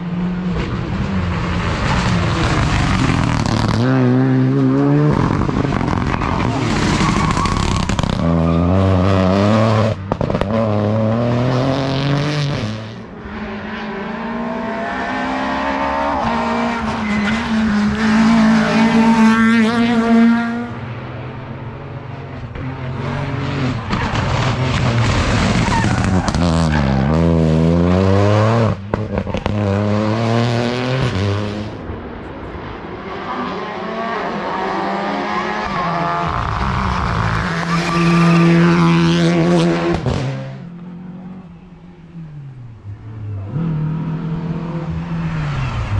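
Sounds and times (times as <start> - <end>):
rally car engines revving: 0.0 - 45.9
tyre squeal: 5.8 - 8.8, 25.4 - 27.2, 37.0 - 38.7.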